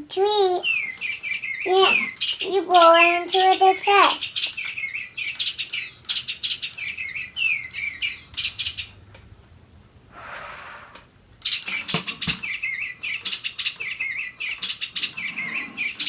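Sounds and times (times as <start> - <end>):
toy birds electronic chirps: 0.4 - 9.0, 11.4 - 16.0
short breathy hiss: 10.1 - 11.1.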